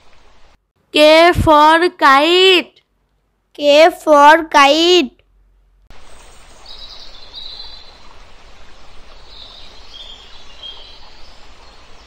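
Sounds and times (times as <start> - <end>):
steady outdoor hiss: 0.0 - 12.0
small birds chirping: 5.9 - 12.0.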